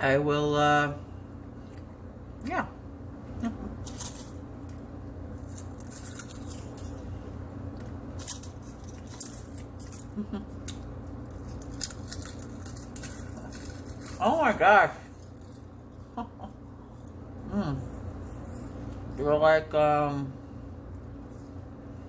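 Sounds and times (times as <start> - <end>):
crunching and chewing chips: 3.6 - 19.2.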